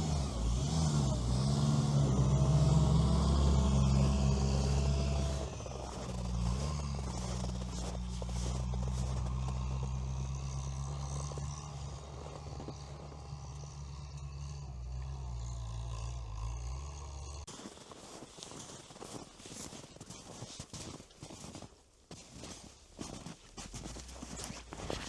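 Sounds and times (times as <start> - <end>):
vehicle engine running: 0.0 - 18.0, 23.0 - 25.0
crackling: 0.0 - 25.0.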